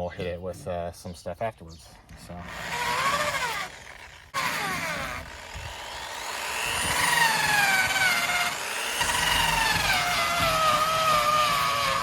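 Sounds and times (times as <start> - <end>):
drill motor whine: 2.4 - 12.0.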